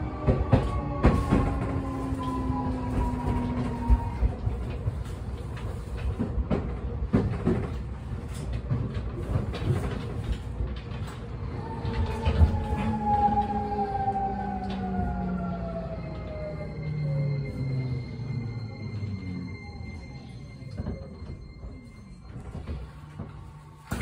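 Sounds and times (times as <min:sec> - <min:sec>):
low rumble of train wheels: 0:00.0 - 0:24.0
wheels clicking on rail joints: 0:00.2 - 0:13.6.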